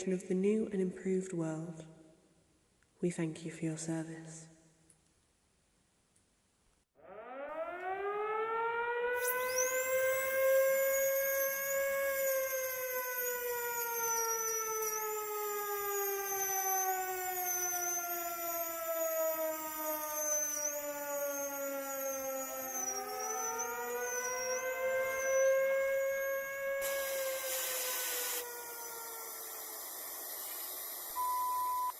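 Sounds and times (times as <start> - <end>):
air-raid siren wailing: 7.0 - 30.2
thin high wavering whine: 9.2 - 31.9.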